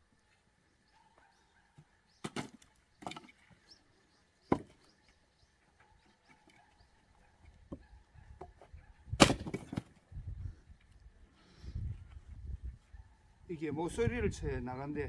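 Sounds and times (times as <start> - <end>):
axe chopping firewood: 9.2 - 9.9.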